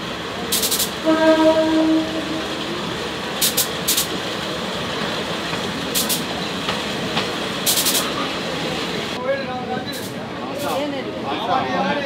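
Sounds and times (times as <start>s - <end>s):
train rolling noise: 0.0s - 12.0s.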